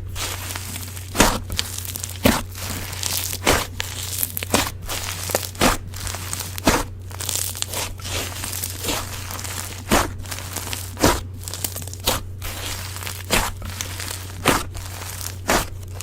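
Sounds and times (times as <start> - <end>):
slime squeezed by hand crackling: 0.0 - 16.0
steady low hum: 0.0 - 16.0.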